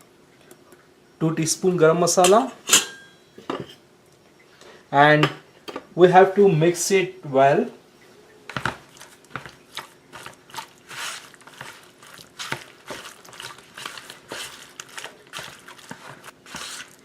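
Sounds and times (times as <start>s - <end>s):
hands mixing wet marinade: 8.5s - 17.0s.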